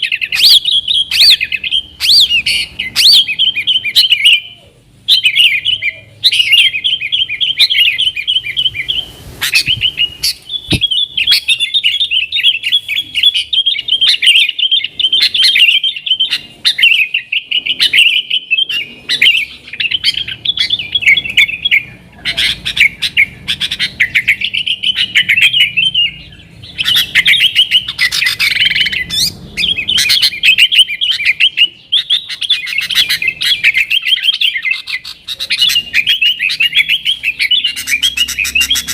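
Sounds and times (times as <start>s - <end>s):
bird twittering song: 0.0s - 38.9s.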